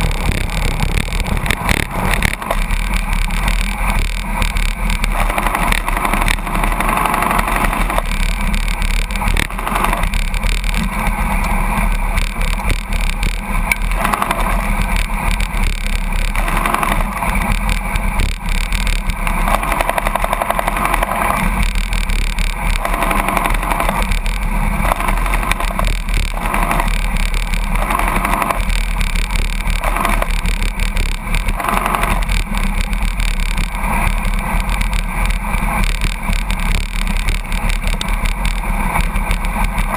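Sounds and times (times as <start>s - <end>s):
wind rushing over microphone: 0.0s - 7.0s
truck and road noise: 0.0s - 39.9s.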